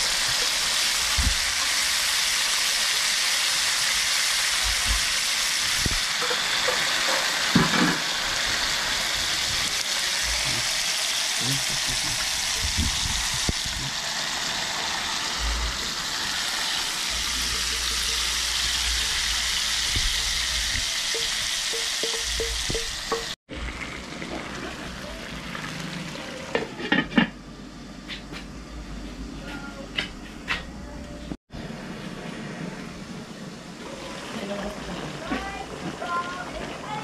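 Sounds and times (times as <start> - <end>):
food sizzling in a pan: 0.0 - 27.2, 31.6 - 37.0
utensil clinking against pan: 21.1 - 23.3.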